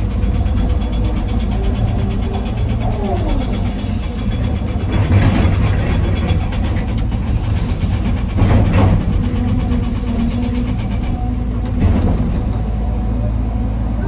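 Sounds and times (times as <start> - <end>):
heavy diesel engines running: 0.0 - 14.0.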